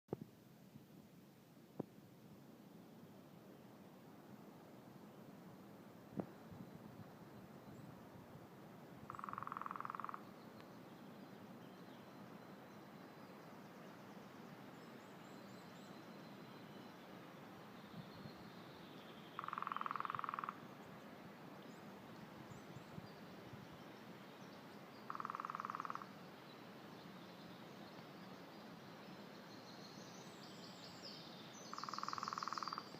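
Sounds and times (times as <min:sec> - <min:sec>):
woodpecker drumming on wood: 0:09.1 - 0:10.2, 0:19.4 - 0:20.6, 0:25.1 - 0:26.1, 0:31.8 - 0:32.9
small birds chirping: 0:22.5 - 0:32.9.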